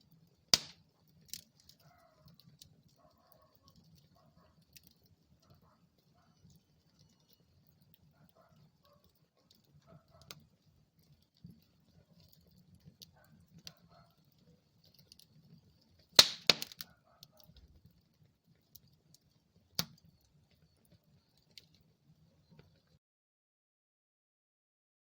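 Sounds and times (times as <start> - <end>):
wood fire crackling: 0.0 - 23.0
sharp loud fire pop: 0.6 - 0.8, 16.2 - 16.7.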